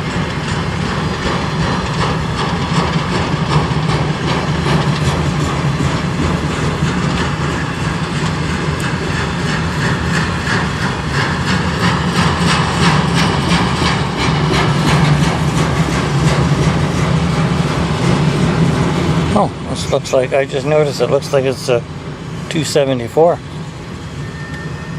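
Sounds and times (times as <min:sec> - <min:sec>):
train wheels clicking over rail joints: 0:00.0 - 0:24.8
low engine hum: 0:00.0 - 0:24.9.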